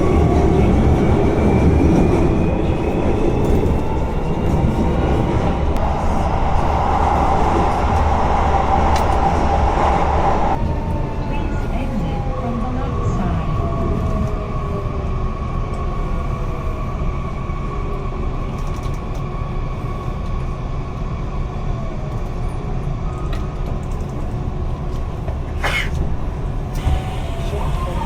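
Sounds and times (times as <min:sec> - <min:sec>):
train running rumble: 0:00.0 - 0:10.6, 0:17.9 - 0:28.0
train motor whine: 0:26.7 - 0:28.0.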